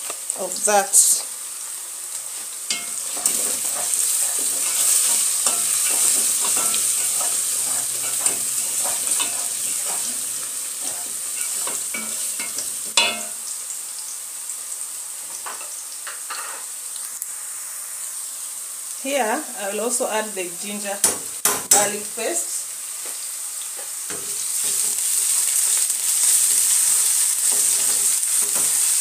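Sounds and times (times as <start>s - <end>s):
food sizzling in hot oil: 0.0s - 29.0s
wooden spoon stirring and scraping: 2.4s - 13.1s, 26.4s - 29.0s.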